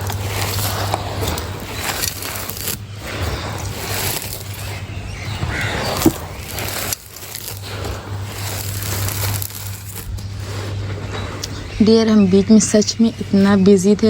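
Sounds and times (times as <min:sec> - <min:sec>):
dry chunks crushed by hand: 0:00.0 - 0:10.6.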